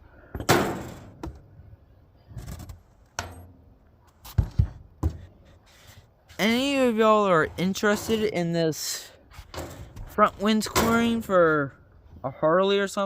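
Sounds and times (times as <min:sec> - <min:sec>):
handling rustle and scrape: 0:04.0 - 0:11.8.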